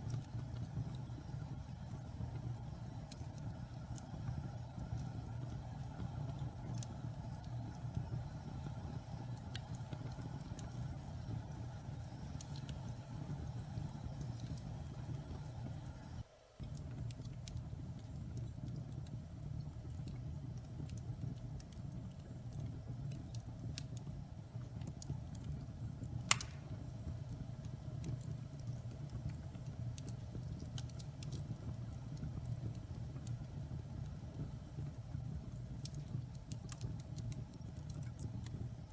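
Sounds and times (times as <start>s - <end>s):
fire crackles: 0.0s - 38.9s
low rumble of flames: 0.0s - 38.9s
loud sharp pop: 26.3s - 26.7s.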